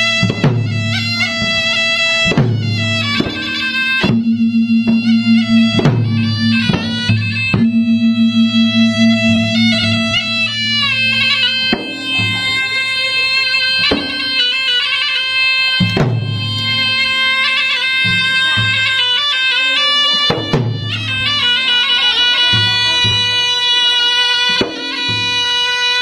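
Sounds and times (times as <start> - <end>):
shawm playing ornamented melody: 0.5 - 26.0
deep drum strokes: 2.4 - 13.0.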